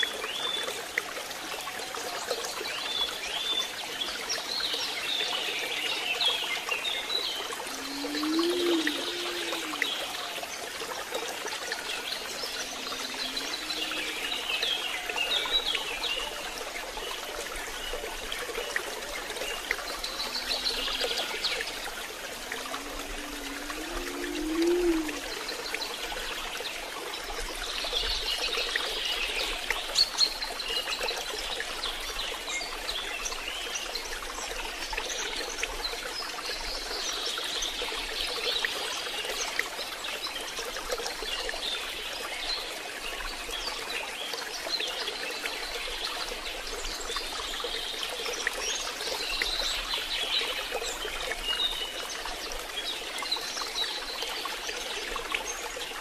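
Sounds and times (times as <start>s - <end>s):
water trickling: 0.0s - 56.0s
rain falling: 7.0s - 26.4s.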